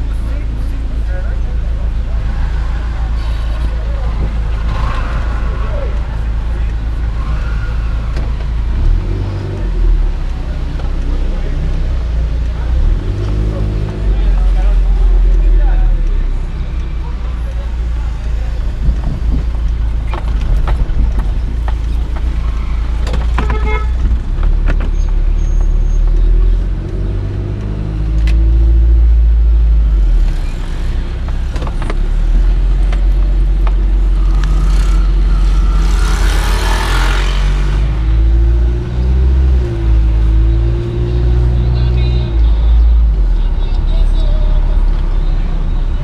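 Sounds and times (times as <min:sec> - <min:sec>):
road vehicle rumble: 0:00.0 - 0:46.0
knocks and rattles: 0:18.8 - 0:25.3.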